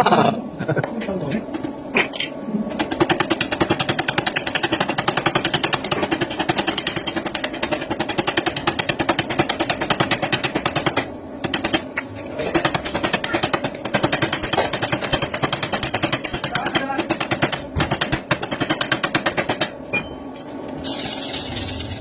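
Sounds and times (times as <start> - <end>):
welding arc crackling: 20.8 - 22.0.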